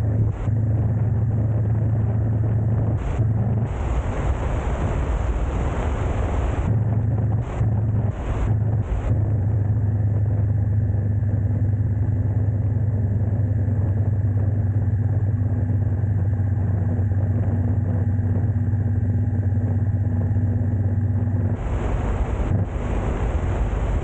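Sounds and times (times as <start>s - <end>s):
vehicle engine humming: 0.0s - 9.8s, 19.1s - 24.0s.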